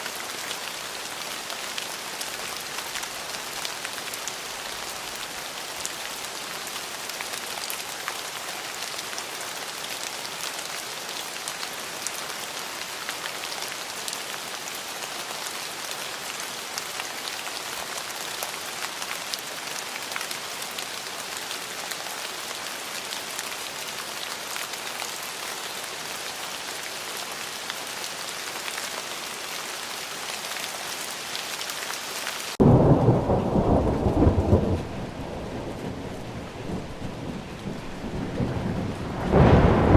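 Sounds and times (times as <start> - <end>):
steady rain falling: 0.0 - 39.9
deep thunder rumble: 32.6 - 39.9.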